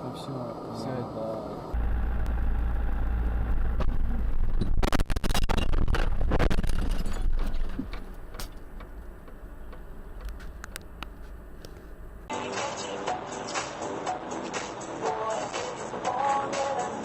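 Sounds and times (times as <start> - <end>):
car road noise rumble: 1.5 - 12.3
clattering debris: 4.5 - 8.5.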